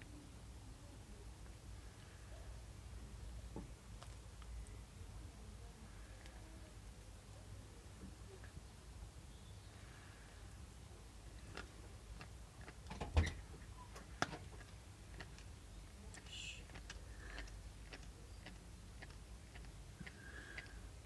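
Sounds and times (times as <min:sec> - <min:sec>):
pet nibbling clicks: 0:14.0 - 0:20.7.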